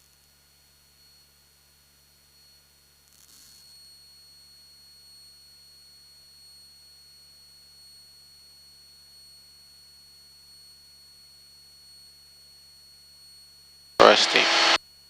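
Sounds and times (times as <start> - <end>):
burst of static: 14.0 - 14.8
radio feed hiss: 14.0 - 14.8
thin high whine: 14.0 - 14.8.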